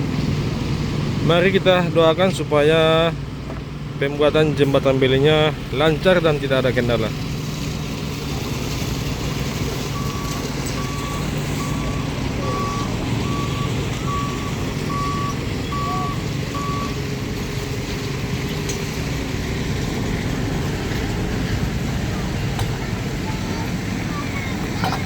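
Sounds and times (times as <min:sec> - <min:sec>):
engine humming: 0:00.0 - 0:25.0
vehicle reversing alarm beeps: 0:09.8 - 0:17.6.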